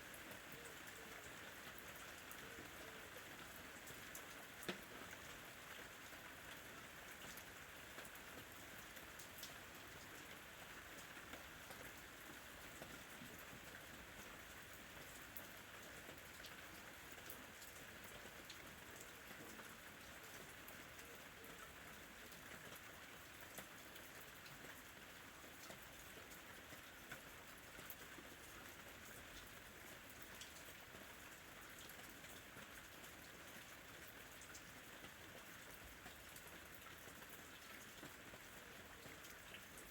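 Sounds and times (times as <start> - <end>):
rain falling: 0.0 - 39.9
raindrops ticking: 3.8 - 6.2.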